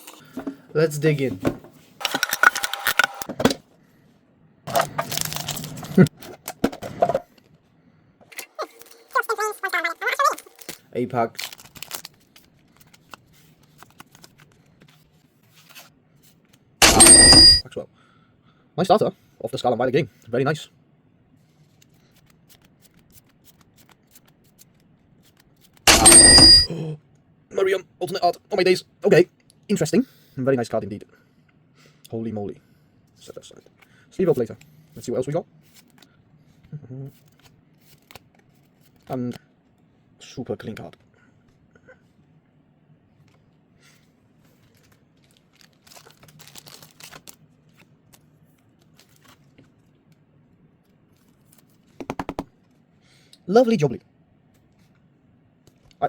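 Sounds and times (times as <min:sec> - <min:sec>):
cards being handled: 0:04.7 - 0:06.1, 0:10.3 - 0:17.6, 0:21.5 - 0:26.6, 0:35.6 - 0:39.4, 0:43.3 - 0:50.2, 0:50.9 - 0:52.7
ringing tones: 0:16.8 - 0:17.6, 0:25.9 - 0:26.7.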